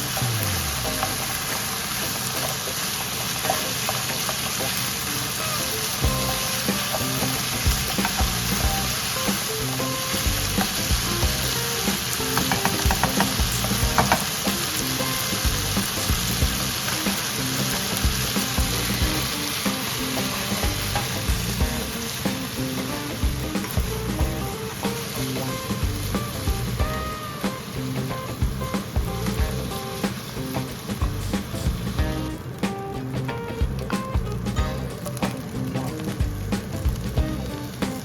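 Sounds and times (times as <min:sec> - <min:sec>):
food sizzling in frying pan: 0:00.0 - 0:38.0
background music: 0:04.1 - 0:38.0
utensil clicking against pan: 0:11.6 - 0:16.1.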